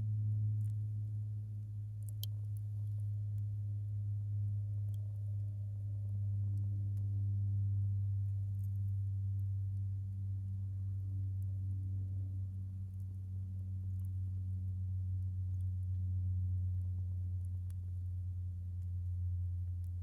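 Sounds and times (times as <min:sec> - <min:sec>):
steady low hum: 0:00.0 - 0:20.0
faint firewood crackles: 0:01.6 - 0:03.6, 0:08.1 - 0:20.0.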